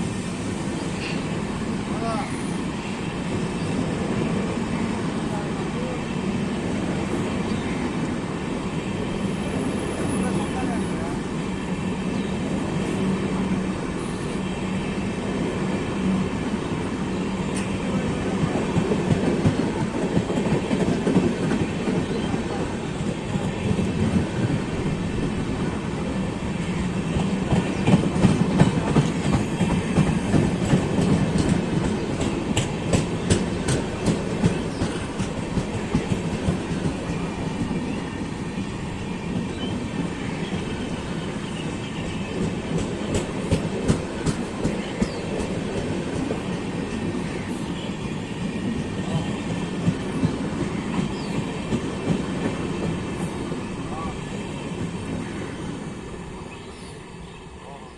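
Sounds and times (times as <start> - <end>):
train rumble: 0.0 - 57.9
train wheels clicking over rail joints: 27.1 - 37.8, 41.5 - 47.8.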